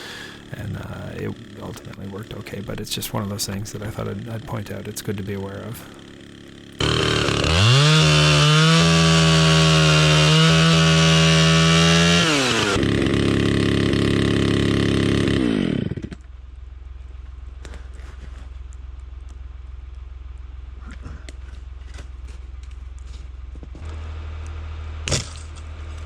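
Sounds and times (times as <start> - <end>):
chainsaw engine revving: 0.0 - 16.3.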